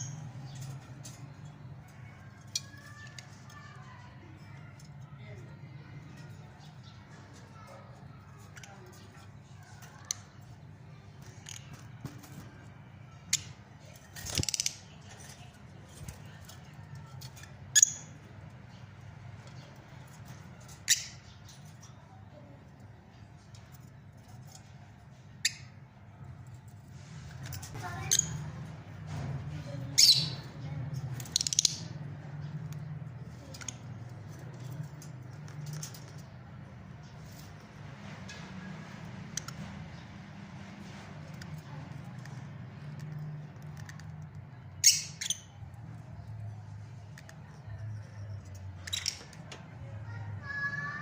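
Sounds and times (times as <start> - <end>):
rattling bird chatter: 0.0 - 51.0
lovebirds squawking and chirping: 29.9 - 30.6, 44.8 - 45.6
shrill bird chirps: 30.0 - 30.6.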